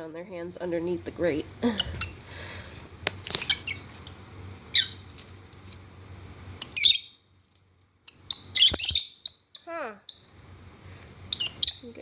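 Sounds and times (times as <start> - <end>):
lovebirds squawking: 4.7 - 5.0, 6.6 - 7.2, 8.1 - 10.2, 11.3 - 12.0.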